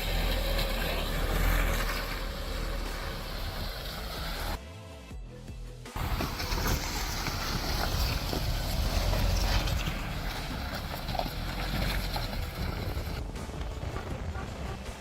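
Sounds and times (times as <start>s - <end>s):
vehicle engine rumble: 0.0s - 4.6s, 5.8s - 15.0s
wind buffeting microphone: 6.0s - 15.0s.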